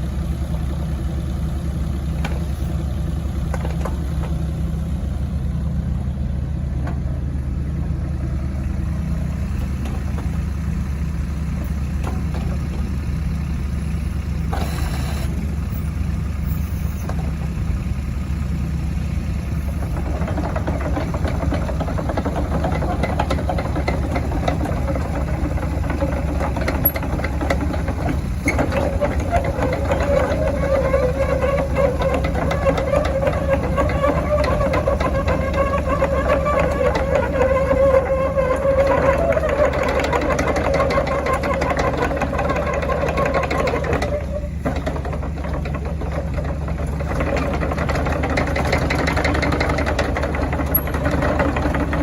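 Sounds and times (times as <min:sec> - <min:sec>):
diesel engine idling: 0:00.0 - 0:52.0
mechanical clatter: 0:19.7 - 0:52.0.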